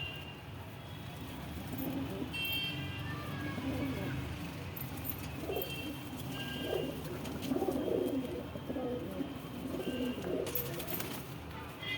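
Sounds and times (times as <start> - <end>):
pigeons cooing: 1.8 - 2.4, 6.6 - 10.6.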